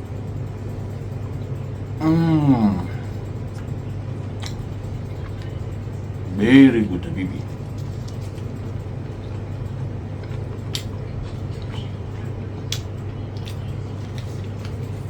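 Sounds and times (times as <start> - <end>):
steady low hum: 0.0 - 15.0
chewing mouth sounds: 3.4 - 5.7, 7.6 - 15.0.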